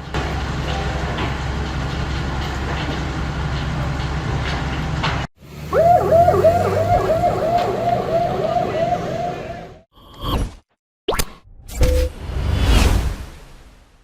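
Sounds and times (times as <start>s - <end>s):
siren yelping: 5.6s - 9.8s.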